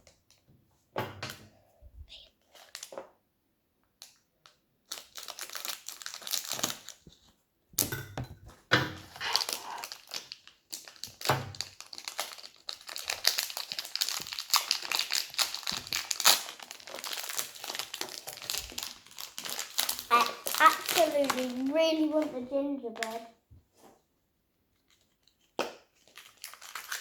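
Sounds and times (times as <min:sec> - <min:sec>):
plastic packaging crinkling: 0:04.0 - 0:07.2, 0:09.0 - 0:23.2, 0:24.9 - 0:27.0.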